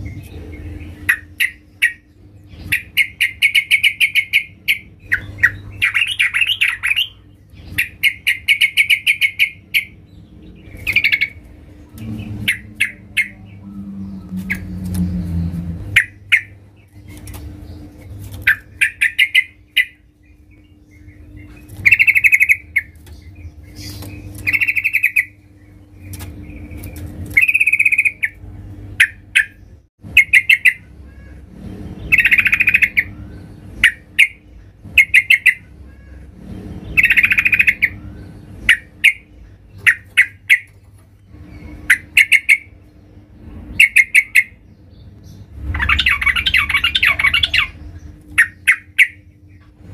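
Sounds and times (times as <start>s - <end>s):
bird chattering calls: 0.0s - 40.8s, 41.5s - 42.8s, 43.7s - 44.6s, 45.6s - 49.8s.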